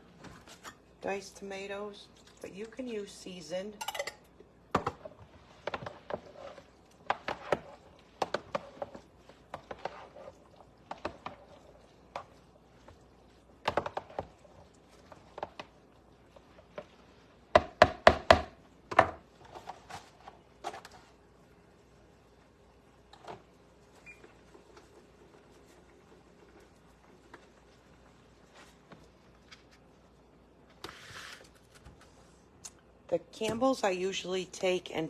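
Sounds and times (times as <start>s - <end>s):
utensils and dishes clinking: 3.8s - 4.3s.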